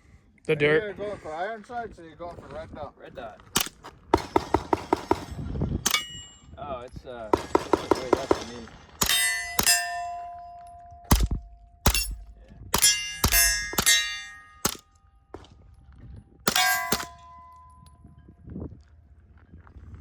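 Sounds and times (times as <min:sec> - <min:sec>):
bullets clanging on steel plate: 0:04.2 - 0:06.4, 0:07.4 - 0:14.9, 0:16.5 - 0:17.9
suppressed pistol shots: 0:11.0 - 0:14.8, 0:16.5 - 0:17.6.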